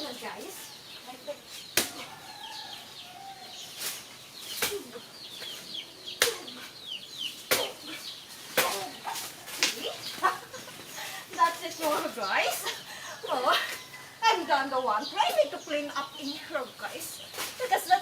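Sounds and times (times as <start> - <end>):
small birds chirping: 0.0 - 18.0
blade chopping banana trunk: 1.8 - 2.1, 6.2 - 6.6, 7.4 - 7.9, 8.5 - 9.0.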